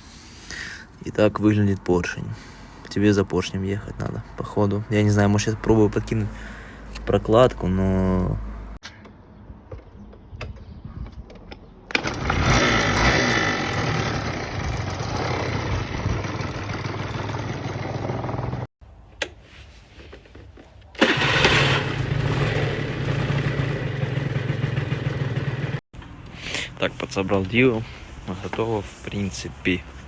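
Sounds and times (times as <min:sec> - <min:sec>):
scooter engine running: 0:11.9 - 0:18.7, 0:21.0 - 0:25.8.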